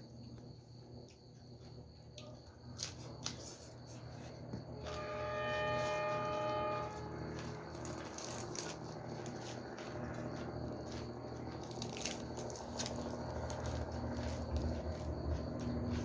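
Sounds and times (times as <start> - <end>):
chewing crisp raw vegetables: 7.4 - 16.0.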